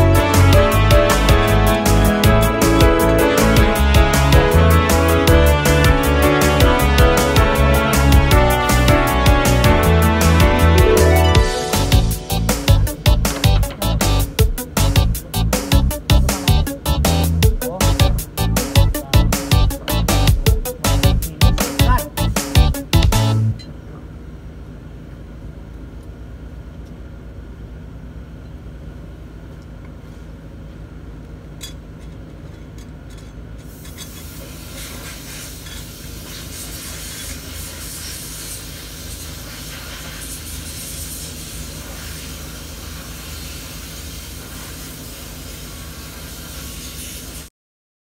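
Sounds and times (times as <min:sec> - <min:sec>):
diesel engine running: 0:00.0 - 0:47.4
hiss: 0:33.7 - 0:47.5.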